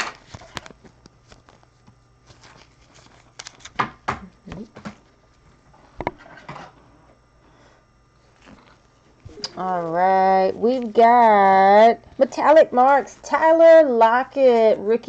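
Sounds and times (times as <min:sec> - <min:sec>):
cards and plastic sleeves rustling: 0:00.0 - 0:05.4, 0:08.2 - 0:13.6
faint steady hum: 0:00.0 - 0:15.0.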